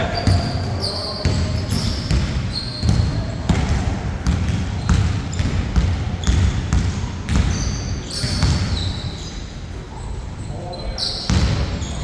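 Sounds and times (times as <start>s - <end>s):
sneakers squeaking on floor: 0.0s - 12.0s
basketball bouncing on a court: 0.1s - 8.9s, 11.3s - 11.9s.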